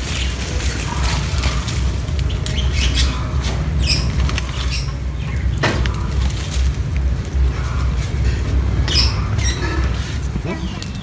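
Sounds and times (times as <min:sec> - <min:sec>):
rustling and clicks: 0:00.0 - 0:08.6.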